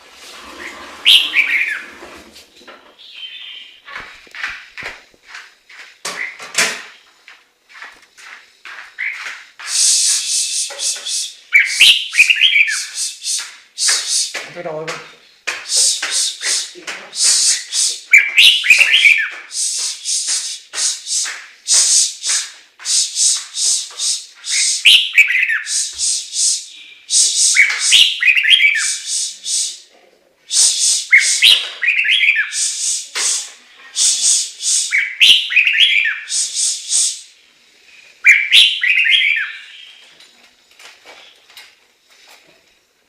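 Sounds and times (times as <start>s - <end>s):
bird singing whistled phrases: 1.1s - 1.8s, 9.7s - 14.3s, 15.7s - 29.8s, 30.5s - 33.4s, 34.0s - 37.3s, 38.2s - 40.0s.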